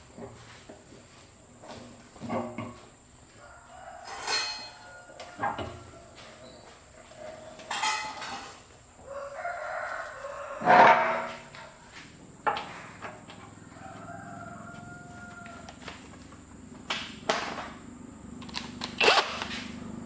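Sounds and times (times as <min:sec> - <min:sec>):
rooster crowing: 0:03.3 - 0:07.4, 0:09.0 - 0:12.0, 0:13.1 - 0:16.4.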